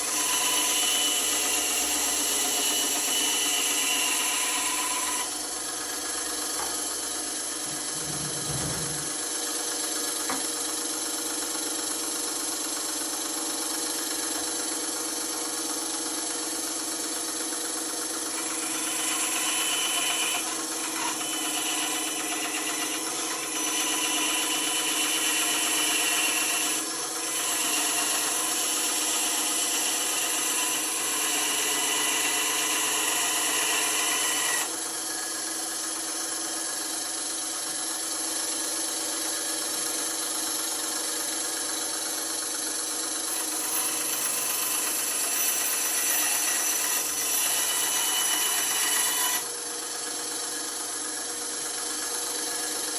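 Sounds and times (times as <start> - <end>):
bandsaw blade rasping: 0.0 - 6.0, 18.3 - 34.8, 43.2 - 49.5
bandsaw motor hum: 0.0 - 52.9.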